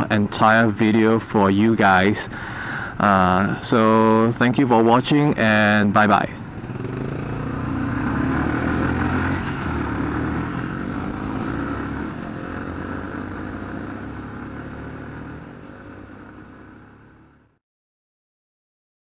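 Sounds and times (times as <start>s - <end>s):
motorcycle engine running: 5.5s - 17.6s.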